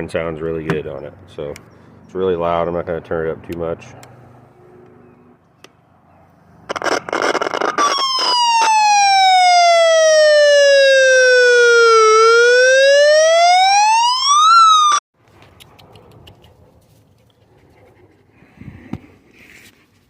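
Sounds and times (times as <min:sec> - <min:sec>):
electronic siren wailing: 0:06.7 - 0:15.0.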